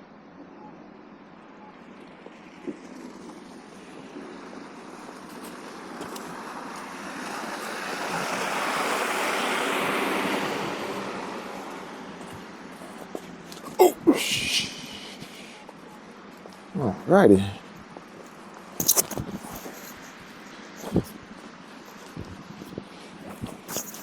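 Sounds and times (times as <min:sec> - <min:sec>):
vehicle tyres on snowy road: 0:01.8 - 0:14.1, 0:17.6 - 0:24.0.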